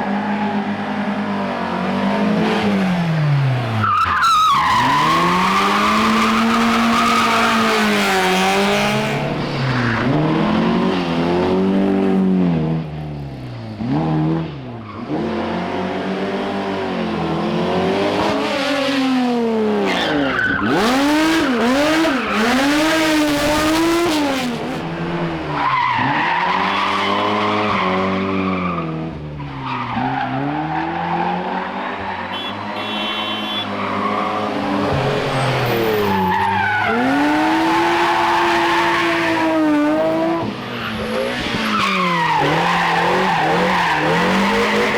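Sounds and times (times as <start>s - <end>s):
rally car engines revving: 0.0s - 44.9s.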